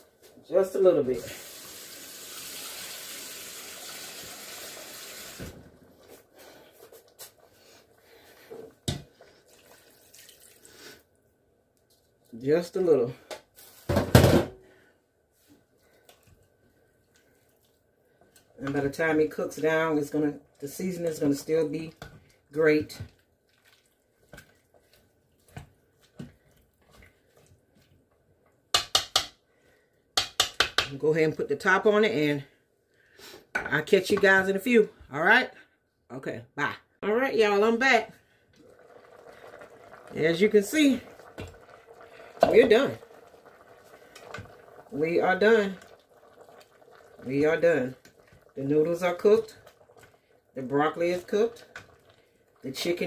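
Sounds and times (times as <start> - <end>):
water running into pot: 0.7 - 6.3, 7.0 - 11.0, 37.8 - 53.0.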